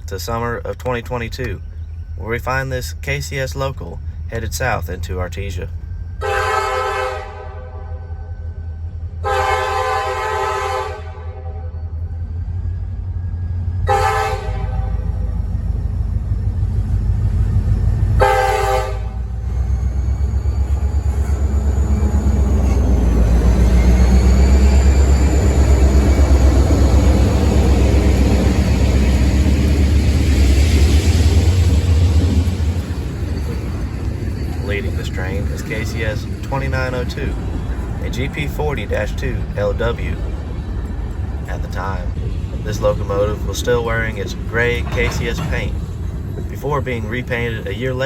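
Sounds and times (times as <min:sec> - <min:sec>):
high whine: 0:00.0 - 0:48.0
locomotive engine rumble: 0:00.0 - 0:48.0
locomotive air horn: 0:06.2 - 0:08.4, 0:09.2 - 0:12.0, 0:13.8 - 0:15.3, 0:18.1 - 0:19.5.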